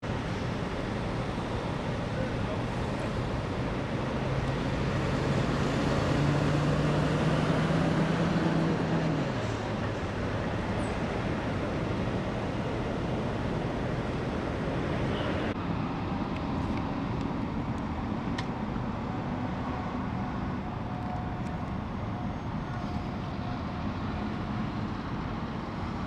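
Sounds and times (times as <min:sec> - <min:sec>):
freeway traffic noise: 0:00.0 - 0:26.0
vehicle passing close by: 0:02.4 - 0:15.6.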